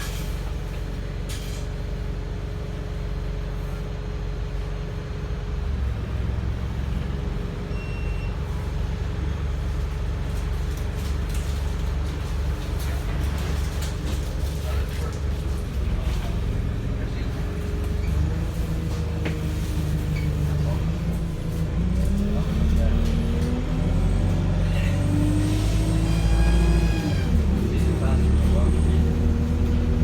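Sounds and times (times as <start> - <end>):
bus engine drone: 0.0 - 30.0
faint engine whine: 0.0 - 30.0.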